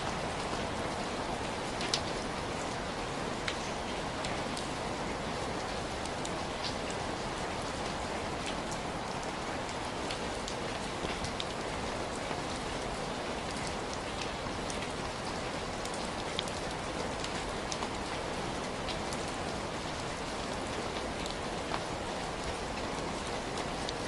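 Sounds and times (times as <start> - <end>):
raindrops ticking on a surface: 0.0 - 24.0.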